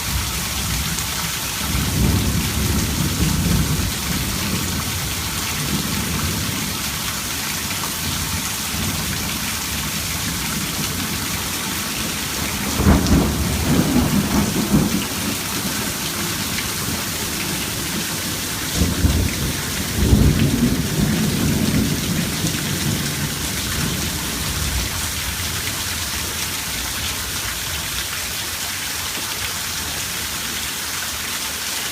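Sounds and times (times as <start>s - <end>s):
rain hiss: 0.0s - 31.9s
thunder rumbling: 1.7s - 7.3s, 8.0s - 26.9s.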